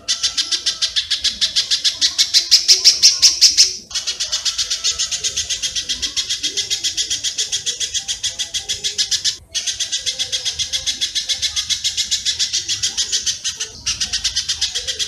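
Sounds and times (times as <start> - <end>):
high bird chips: 0.0 - 15.0.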